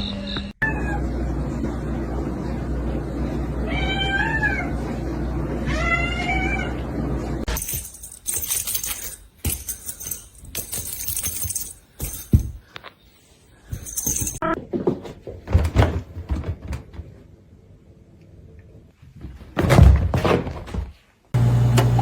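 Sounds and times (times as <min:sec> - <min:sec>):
cat meowing: 0:00.6 - 0:01.1, 0:03.6 - 0:04.8, 0:05.7 - 0:06.8
clattering and rustling: 0:07.5 - 0:13.0.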